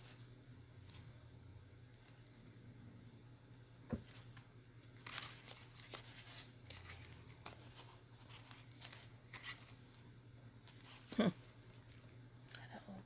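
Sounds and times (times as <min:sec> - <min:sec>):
steady low hum: 0:00.0 - 0:13.0
paper and thread rustling: 0:03.9 - 0:12.2.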